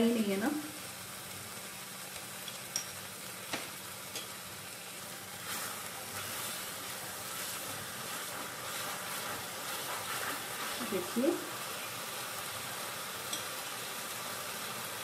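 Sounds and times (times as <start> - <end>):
food sizzling in pan: 0.0 - 15.0
wooden spatula scraping pan: 7.4 - 11.2.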